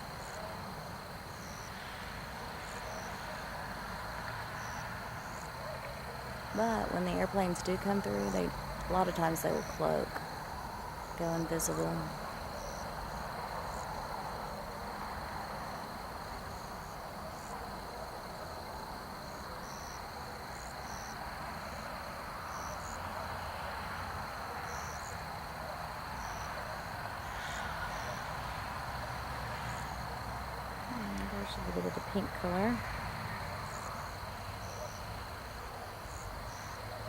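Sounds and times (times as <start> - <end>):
crickets trilling: 0.0 - 37.0.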